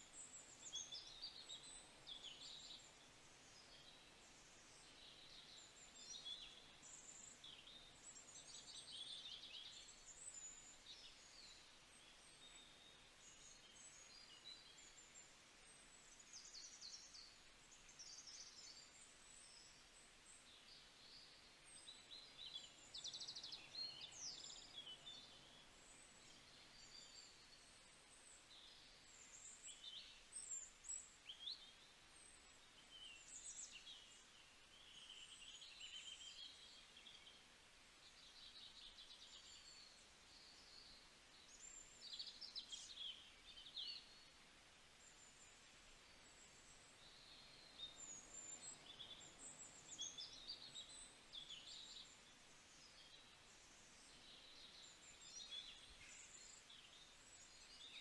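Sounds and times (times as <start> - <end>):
songbirds chirping and whistling: 45.1 - 58.0.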